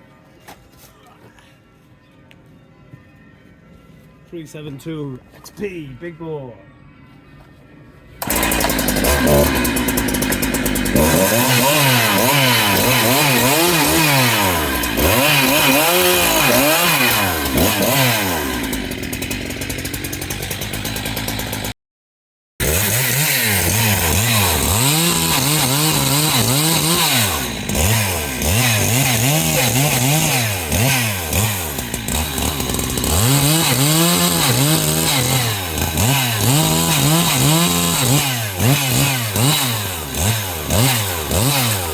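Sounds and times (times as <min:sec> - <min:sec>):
chainsaw revving: 0:08.2 - 0:21.8, 0:22.6 - 0:41.9.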